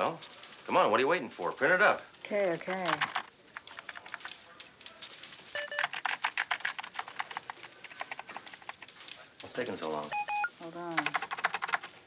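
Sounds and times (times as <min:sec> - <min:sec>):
computer keyboard typing: 0:02.8 - 0:04.4, 0:05.5 - 0:09.1, 0:10.1 - 0:12.0
short electronic beeps: 0:10.1 - 0:10.5.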